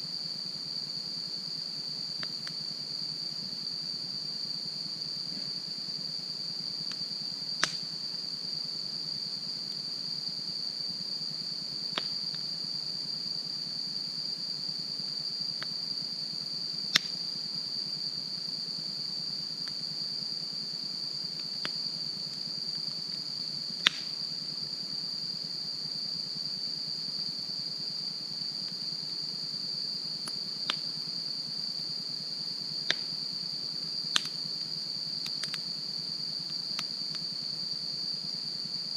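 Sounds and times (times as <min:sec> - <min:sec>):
crickets chirping: 0:00.0 - 0:38.9
sharp pops from fire: 0:07.6 - 0:07.9, 0:12.0 - 0:12.2, 0:16.9 - 0:17.2, 0:23.8 - 0:24.2, 0:30.2 - 0:30.9, 0:32.8 - 0:33.1, 0:34.1 - 0:34.4, 0:35.2 - 0:35.6.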